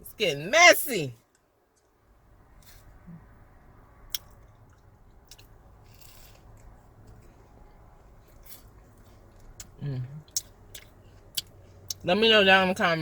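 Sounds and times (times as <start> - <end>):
chewing sandwich: 4.1 - 12.0
wet mouth clicks: 9.6 - 12.0.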